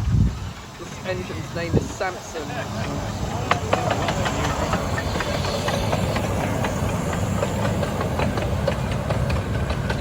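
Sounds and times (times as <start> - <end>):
steam hiss: 0.0 - 10.0
train rumbling past: 0.0 - 10.0
wheel clicks and knocks on track: 2.9 - 10.0.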